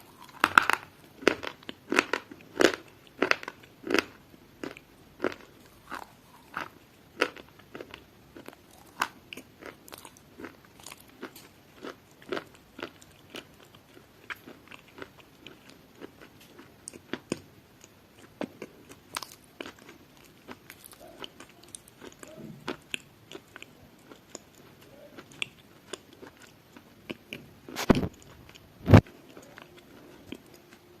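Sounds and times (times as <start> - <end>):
crunchy food being chewed: 0.0 - 31.0.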